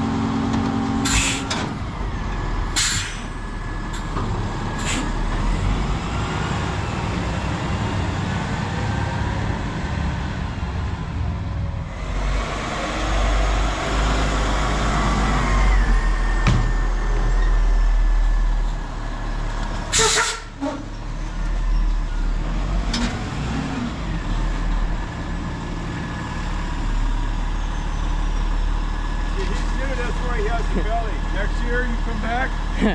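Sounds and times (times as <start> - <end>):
diesel engine droning: 0.0 - 32.9
air brake hiss: 1.0 - 1.6, 2.8 - 3.4, 4.8 - 5.2, 19.9 - 20.6.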